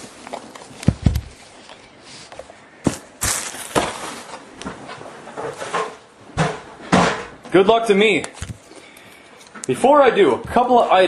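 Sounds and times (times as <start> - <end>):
cardboard and wrapping rustling: 0.0 - 6.1.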